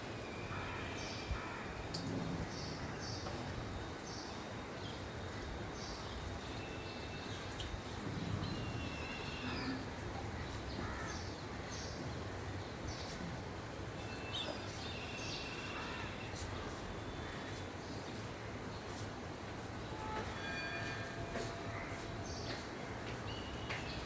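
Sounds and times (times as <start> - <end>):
low background noise: 0.0 - 24.0.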